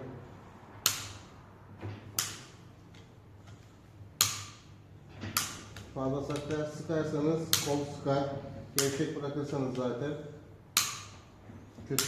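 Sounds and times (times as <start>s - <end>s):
torque wrench clicking: 4.2s - 4.6s, 10.7s - 11.2s.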